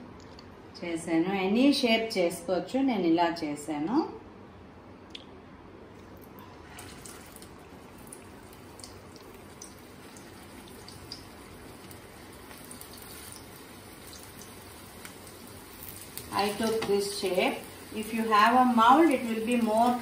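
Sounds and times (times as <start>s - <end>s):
oil popping and crackling: 6.1s - 20.0s
food sizzling in oil: 6.8s - 20.0s.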